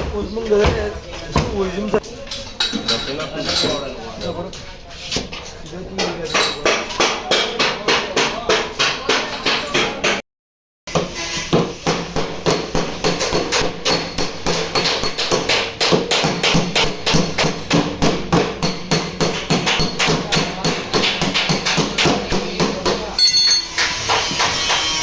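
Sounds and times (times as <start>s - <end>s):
hammer tapping on sheet metal: 6.0s - 10.2s, 10.9s - 25.0s.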